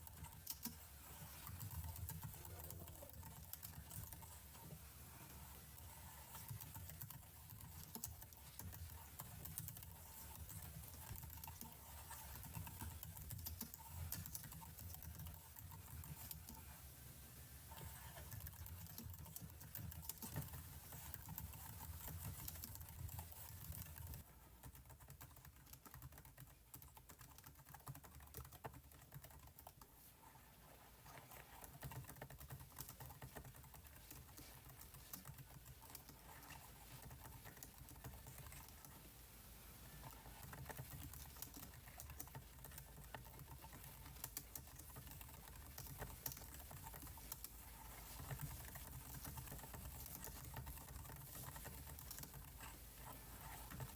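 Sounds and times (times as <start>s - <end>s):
computer keyboard typing: 0.0s - 4.8s, 5.4s - 16.8s, 17.8s - 29.9s, 31.2s - 39.2s, 40.0s - 53.9s.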